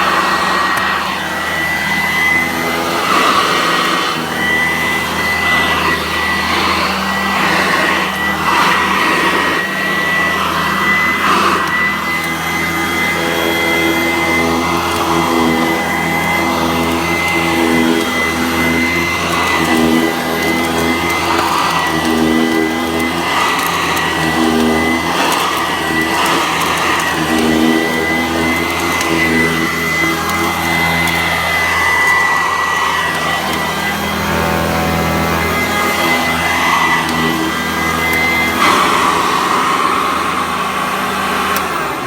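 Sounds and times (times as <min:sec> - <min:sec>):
vacuum cleaner running: 0:00.0 - 0:42.0.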